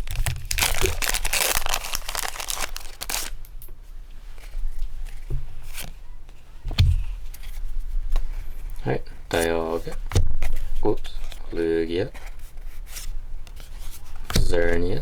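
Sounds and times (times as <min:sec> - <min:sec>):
cards rustling and clicking: 0:00.0 - 0:03.4
foil wrapper crinkling and tearing: 0:00.0 - 0:03.5.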